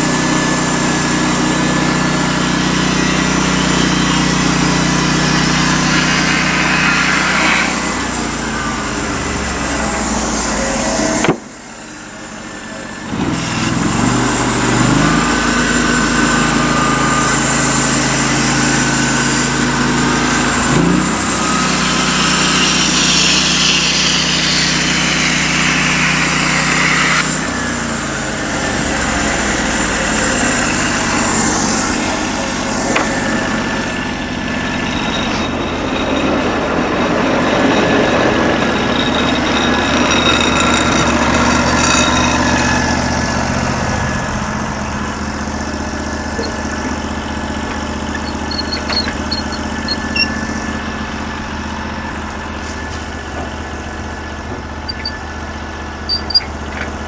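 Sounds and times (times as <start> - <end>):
band blade cutting log: 0.0 - 11.7, 13.1 - 33.9
sawmill gas engine running: 0.0 - 57.0.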